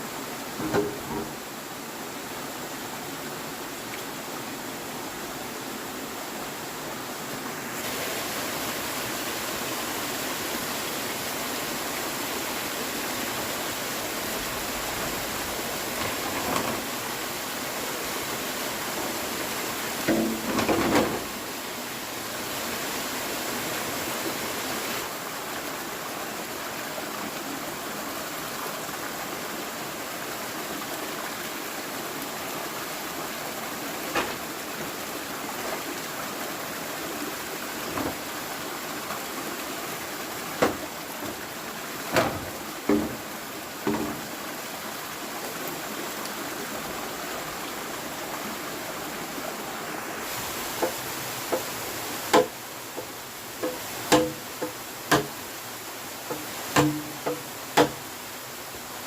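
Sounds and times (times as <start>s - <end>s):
rushing water: 0.0s - 59.0s
sharp knocks and taps: 52.3s - 55.3s, 56.3s - 58.0s.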